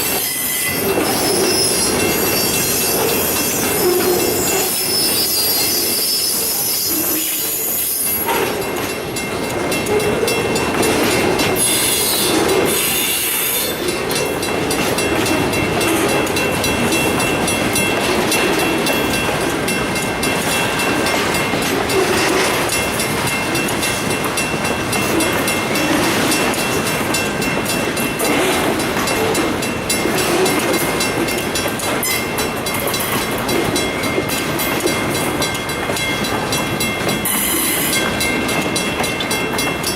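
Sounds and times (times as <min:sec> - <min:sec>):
high wheel squeal: 0:00.0 - 0:08.7, 0:11.6 - 0:13.8, 0:37.2 - 0:38.1
freight train rumble and clatter: 0:00.0 - 0:39.9.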